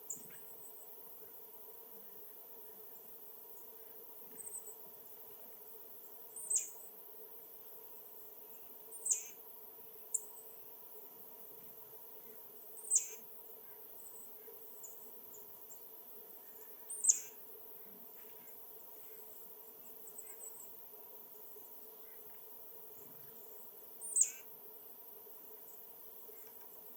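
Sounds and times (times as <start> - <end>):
songbird sharp downward calls: 12.8 - 13.2.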